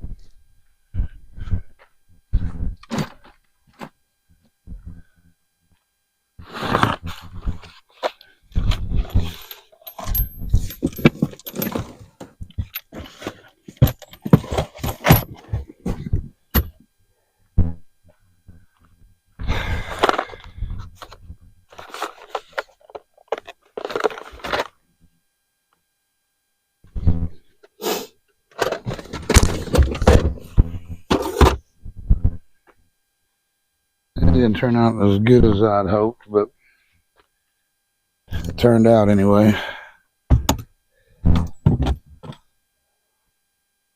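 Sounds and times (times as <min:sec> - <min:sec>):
rattling: 0:09.0 - 0:12.0
tools clattering and knocking: 0:09.0 - 0:15.7, 0:21.8 - 0:24.7.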